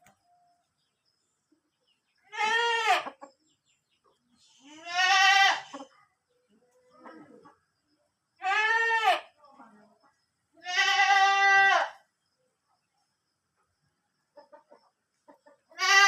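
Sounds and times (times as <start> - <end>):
goat bleating: 2.3 - 3.2, 4.6 - 5.9, 8.4 - 9.3, 10.6 - 12.0, 15.7 - 16.0.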